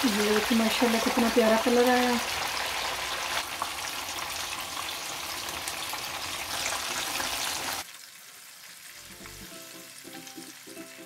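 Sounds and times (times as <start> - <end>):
patties sizzling in oil: 0.0 - 11.0
quiet background music: 8.9 - 11.0.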